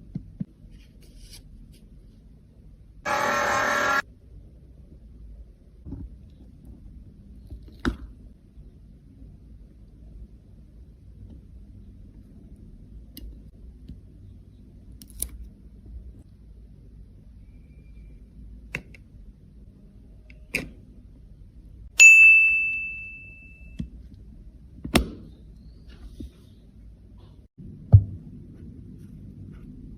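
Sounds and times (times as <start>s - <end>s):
bright ringing ding: 22.0s - 23.8s.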